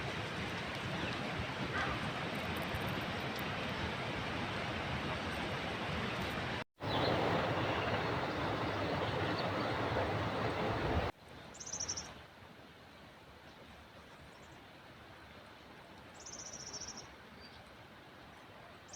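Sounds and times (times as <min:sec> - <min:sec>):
outdoor rushing noise: 0:06.4 - 0:11.1.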